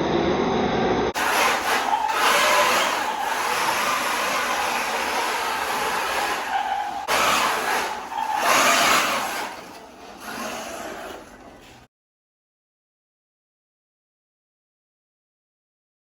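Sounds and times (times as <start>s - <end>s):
electric motor whine: 0.2s - 11.4s
tyres skidding on loose dirt: 1.2s - 11.9s.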